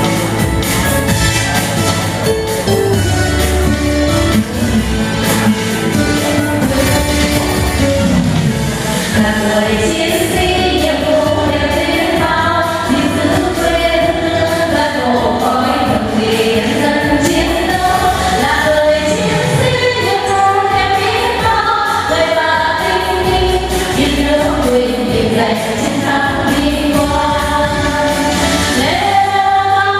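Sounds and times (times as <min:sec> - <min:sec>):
musical accompaniment: 0:00.0 - 0:29.9
vocal trio singing: 0:08.7 - 0:29.9.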